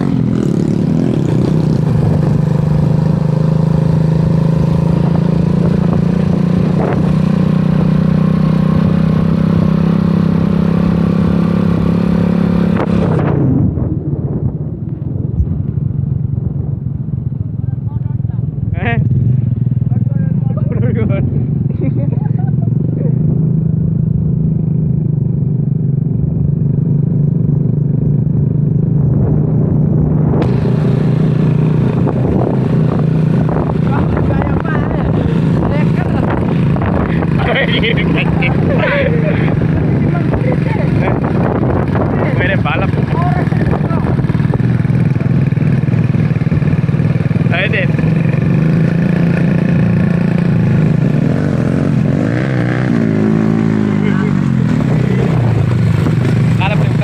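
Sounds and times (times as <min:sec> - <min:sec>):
motorcycle engine droning: 0:00.0 - 0:57.0.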